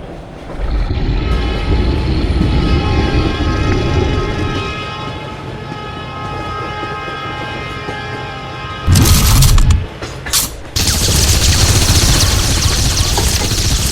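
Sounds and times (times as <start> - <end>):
heavy low rumble: 0.0 - 5.3.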